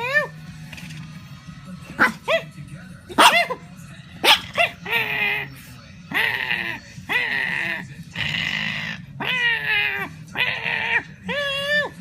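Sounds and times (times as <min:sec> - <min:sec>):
puppy whining cries: 0:00.0 - 0:00.4, 0:04.3 - 0:05.5, 0:06.1 - 0:12.0
puppy yelping: 0:06.1 - 0:12.0.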